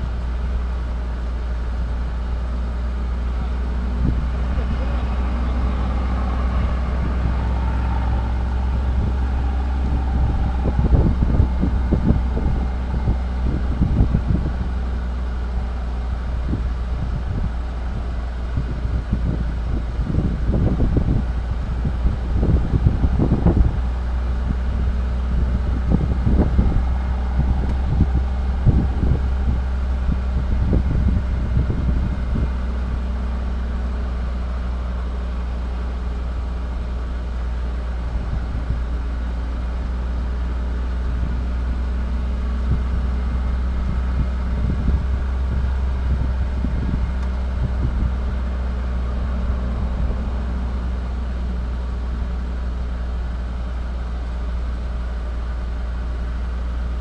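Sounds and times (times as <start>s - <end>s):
engine idling: 0.0s - 57.0s
low thumps: 3.0s - 33.1s.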